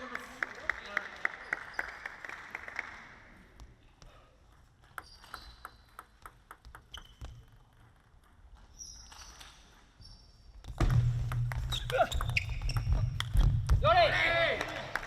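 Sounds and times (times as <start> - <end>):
table tennis ball clicking: 4.8 - 8.4
faint high squeaks: 5.0 - 5.9, 8.5 - 10.6.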